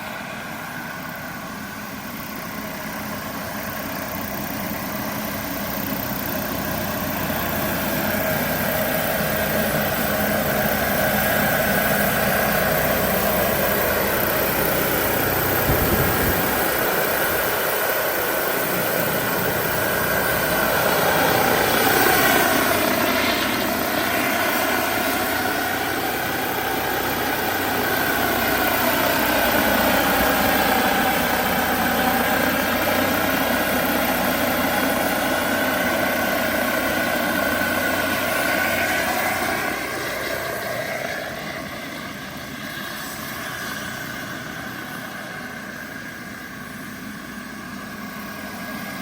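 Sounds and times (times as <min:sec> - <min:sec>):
model helicopter turbine engines: 0:00.0 - 0:49.0.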